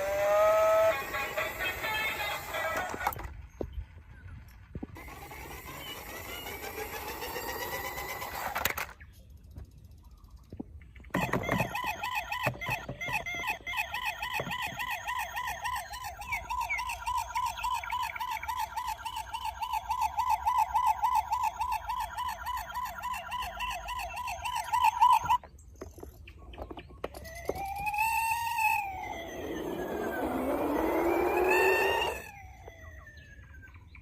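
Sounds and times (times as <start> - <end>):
toy siren warbling: 0.0 - 3.3, 5.0 - 8.9, 11.1 - 25.5, 26.6 - 34.0
rising and falling pitched calls: 11.2 - 25.4, 27.2 - 34.0.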